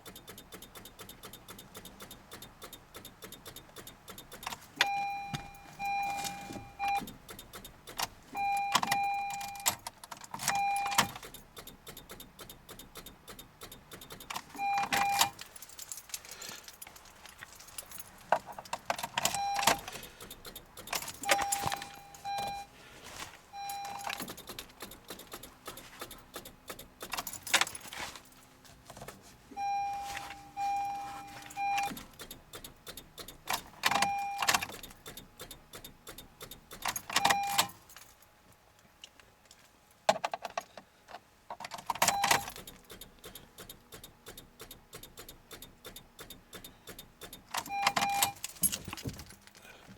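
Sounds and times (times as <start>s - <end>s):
fast metallic clicking: 0.0s - 4.6s, 7.0s - 8.1s, 9.4s - 16.9s, 18.4s - 21.9s, 24.0s - 27.7s, 31.8s - 37.7s, 41.7s - 48.6s
car warning chime beeping: 0.0s - 9.8s, 10.4s - 15.5s, 19.1s - 22.8s, 23.5s - 27.4s, 29.5s - 37.8s, 42.0s - 48.5s.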